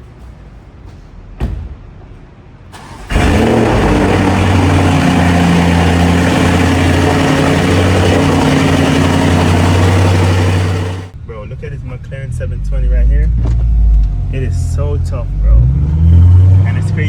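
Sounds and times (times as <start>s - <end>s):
thump: 1.4s - 1.8s
car engine idling loudly: 2.8s - 11.2s.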